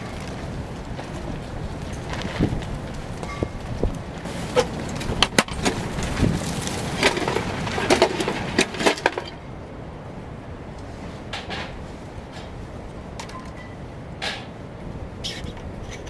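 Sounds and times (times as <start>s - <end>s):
knocks and clatters: 0.0s - 9.4s, 11.3s - 12.6s, 13.2s - 14.6s.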